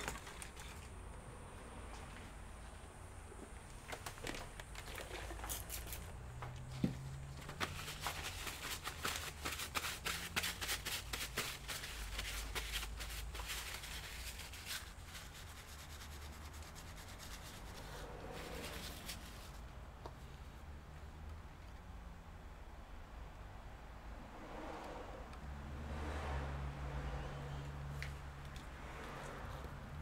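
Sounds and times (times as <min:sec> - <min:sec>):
scratchy rubbing: 0:07.6 - 0:19.6.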